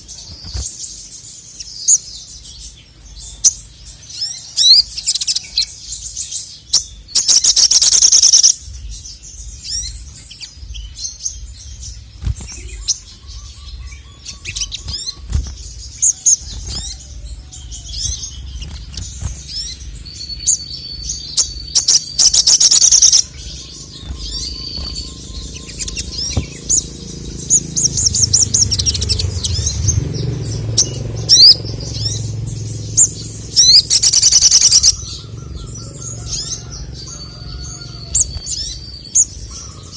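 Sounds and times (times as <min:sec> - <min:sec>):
bird twittering song: 0:00.0 - 0:39.9
bird rattling trills: 0:04.3 - 0:29.9, 0:30.6 - 0:39.9
low hum: 0:08.6 - 0:39.9.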